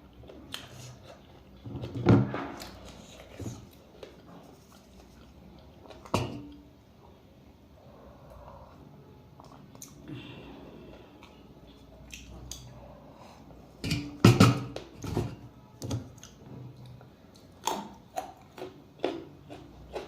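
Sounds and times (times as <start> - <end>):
chewing crunches: 16.2 - 20.0.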